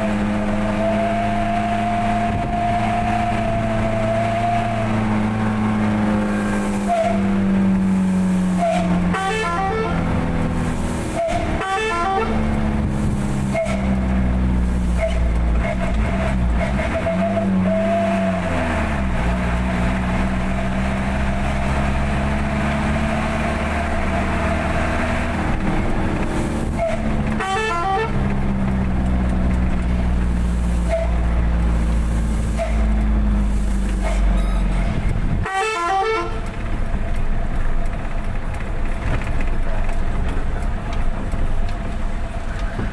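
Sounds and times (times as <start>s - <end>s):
truck horn toots: 0.0s - 7.4s, 8.5s - 10.3s, 11.0s - 12.8s, 13.4s - 18.6s, 26.7s - 28.4s, 30.8s - 31.3s, 32.5s - 33.1s, 34.0s - 36.6s
truck engine running: 0.0s - 42.9s.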